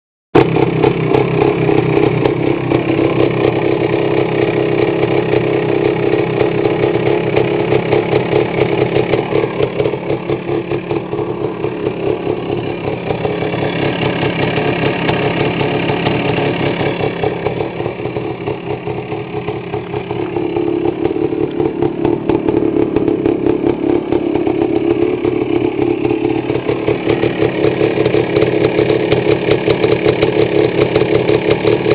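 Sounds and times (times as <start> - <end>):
two-stroke engine running: 0.4 - 31.9.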